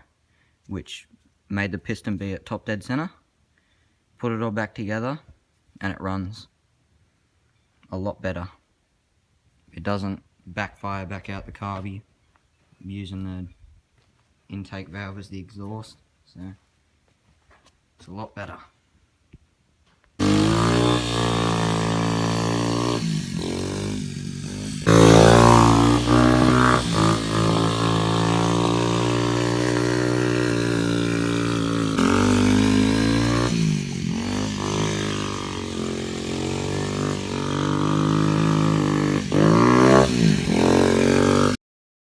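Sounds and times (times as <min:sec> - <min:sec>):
quad engine revving: 0:20.2 - 0:41.6.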